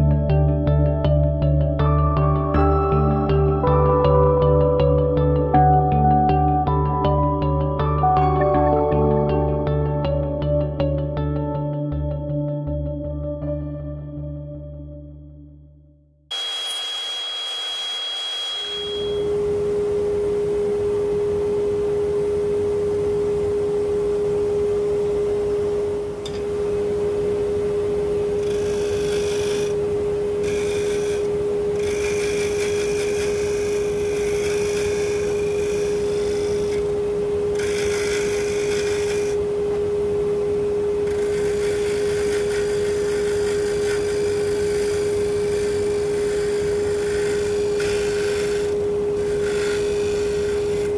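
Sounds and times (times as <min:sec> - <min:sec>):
wood lathe humming: 0:16.3 - 0:19.4, 0:28.1 - 0:39.6, 0:41.0 - 0:50.9
turning tool scraping wood: 0:28.4 - 0:29.8, 0:30.4 - 0:36.8, 0:37.6 - 0:39.4, 0:41.1 - 0:50.9.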